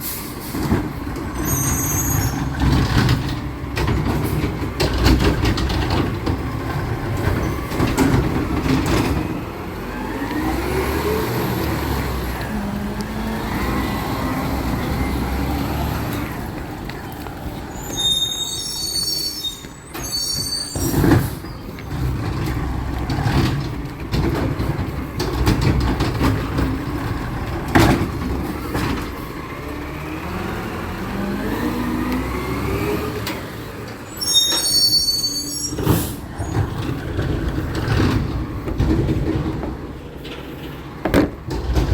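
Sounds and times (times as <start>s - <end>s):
high squeal: 1.4s - 2.6s, 17.7s - 21.6s, 34.1s - 36.6s
truck diesel engine revving: 2.3s - 17.5s, 21.7s - 34.1s.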